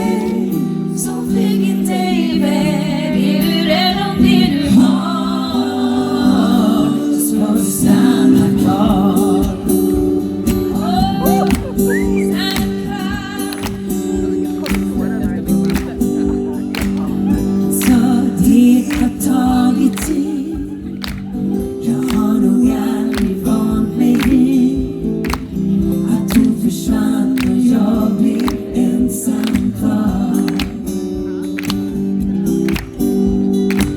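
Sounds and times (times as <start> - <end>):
strummed acoustic guitar: 0.0 - 33.9
person singing: 10.6 - 15.9, 16.8 - 31.8.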